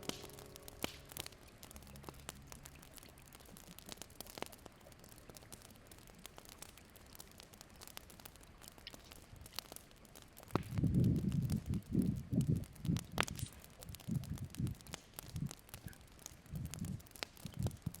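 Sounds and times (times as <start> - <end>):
low background hiss: 0.0 - 14.0
faint crackles and clicks: 0.0 - 18.0.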